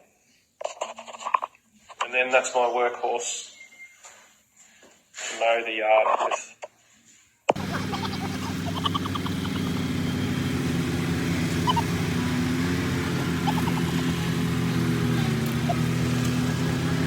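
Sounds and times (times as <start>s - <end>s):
garden tractor engine running: 7.5s - 17.0s.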